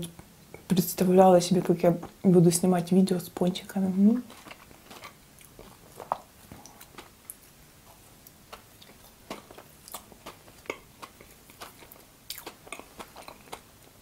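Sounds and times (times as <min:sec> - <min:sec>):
person chewing: 0:04.2 - 0:14.0.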